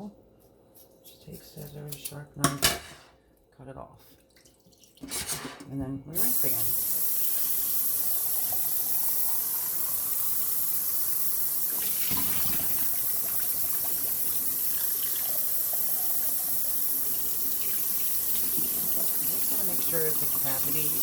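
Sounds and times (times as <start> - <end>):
tap water splashing into sink: 11.7 - 21.0.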